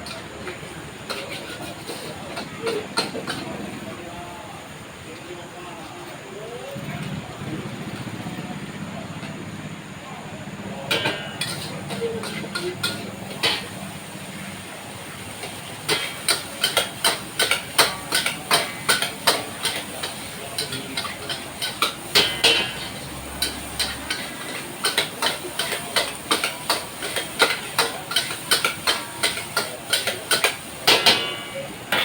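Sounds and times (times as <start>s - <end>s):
metal spatula clanking on wok: 0.0s - 3.7s, 10.8s - 14.6s, 15.2s - 32.0s
steady hiss: 0.0s - 32.0s.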